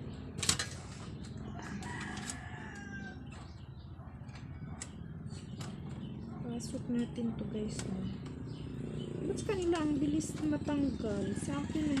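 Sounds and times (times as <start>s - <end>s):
rooster crowing: 1.5s - 3.5s, 11.2s - 12.0s.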